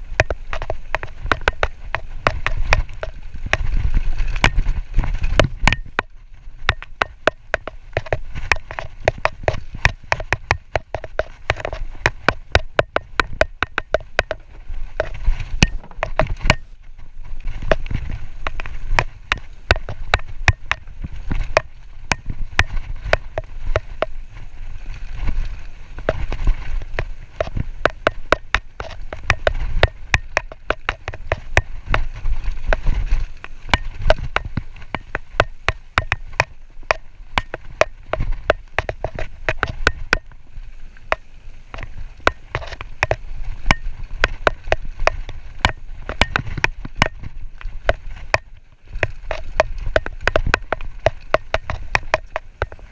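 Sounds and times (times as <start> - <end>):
tyres rumbling: 0.0 - 16.8
bike chain and frame rattling: 0.0 - 52.9
wind: 0.0 - 52.9.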